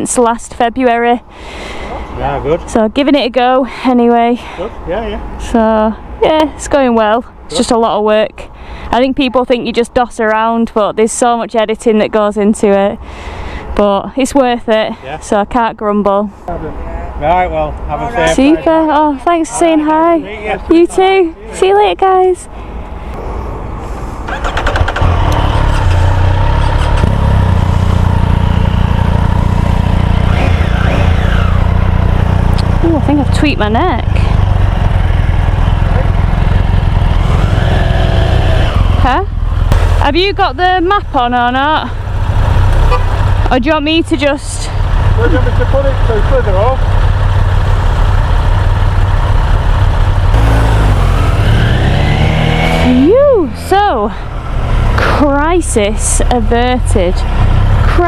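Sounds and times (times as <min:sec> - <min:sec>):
motorcycle starter cranking: 0:24.2 - 0:28.3
motorcycle engine idling: 0:24.2 - 0:58.0.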